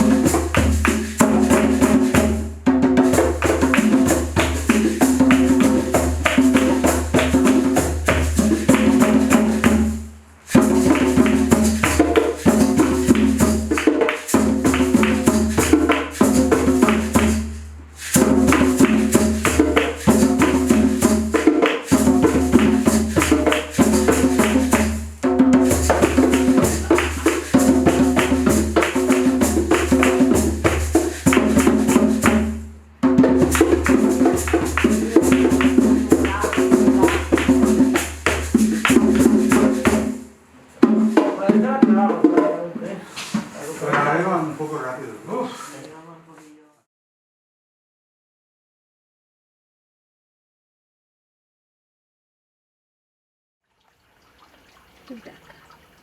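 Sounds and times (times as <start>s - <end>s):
rhythmic instrumental music: 0.0s - 42.5s.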